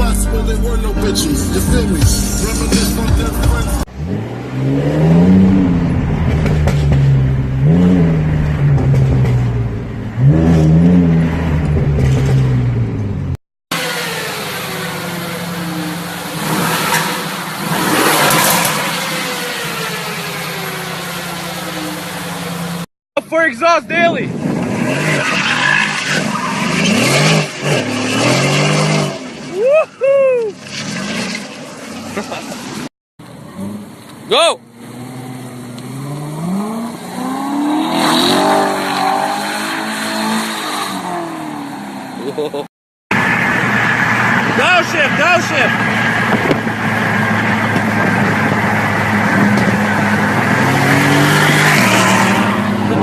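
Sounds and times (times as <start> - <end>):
car engine and exhaust running: 0.0 - 22.9, 42.2 - 53.0.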